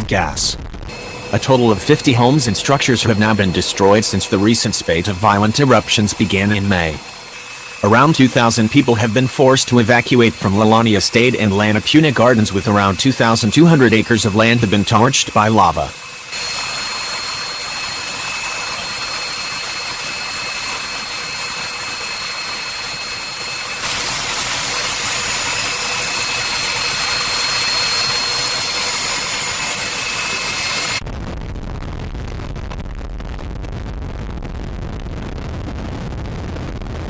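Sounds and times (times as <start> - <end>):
turbine engine hiss with whines: 0.0 - 31.0
wind rumble on microphone: 31.0 - 37.0.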